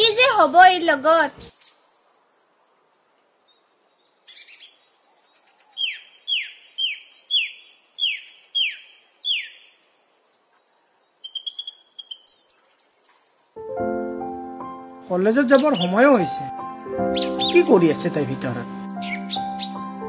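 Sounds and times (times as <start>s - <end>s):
bird calling: 4.2s - 13.3s, 15.3s - 20.0s.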